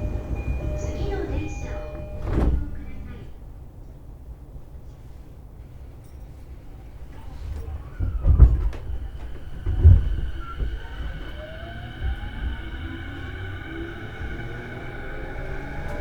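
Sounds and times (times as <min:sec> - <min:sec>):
electric train motor whine: 0:00.0 - 0:02.6, 0:07.6 - 0:16.0
train rumble: 0:00.0 - 0:16.0.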